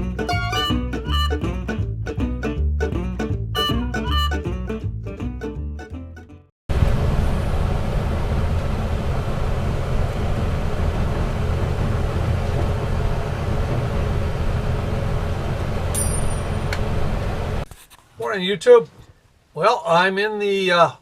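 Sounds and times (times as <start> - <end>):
bus engine and road rumble: 6.7 - 17.7.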